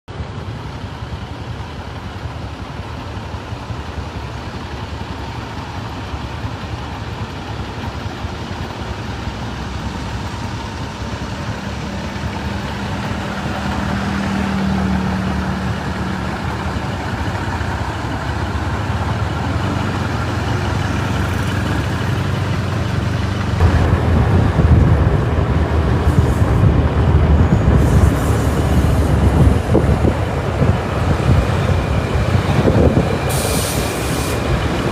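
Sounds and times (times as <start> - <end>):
train approaching rumble: 0.1 - 34.9.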